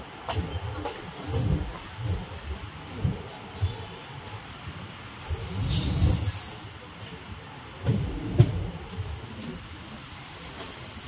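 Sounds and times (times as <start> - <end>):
train rumble: 0.0 - 11.0
high wheel squeal: 5.3 - 6.9, 8.0 - 11.0.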